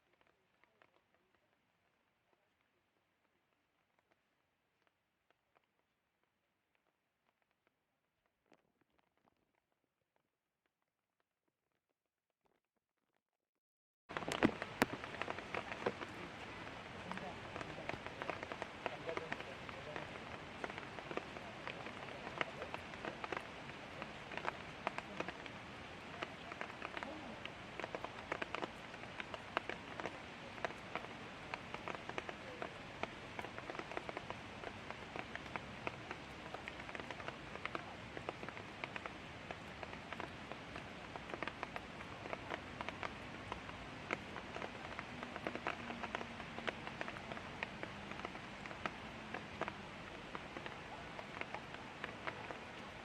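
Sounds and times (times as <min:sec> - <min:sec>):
raindrops tapping hard surfaces: 0:00.0 - 0:07.7, 0:14.1 - 0:53.0
light rain hissing: 0:14.1 - 0:53.0.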